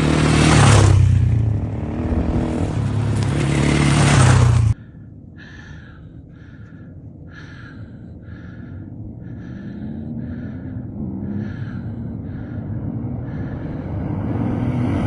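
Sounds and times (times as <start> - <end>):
low rumble: 1.2 - 14.3
person panting hard: 4.7 - 14.1.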